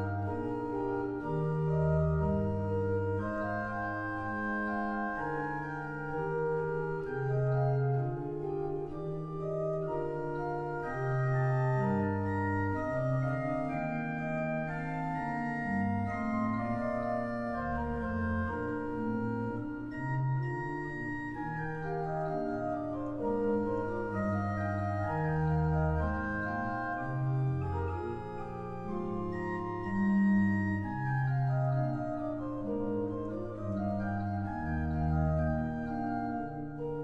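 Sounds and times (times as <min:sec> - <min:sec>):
pipe organ playing: 0:00.0 - 0:37.0.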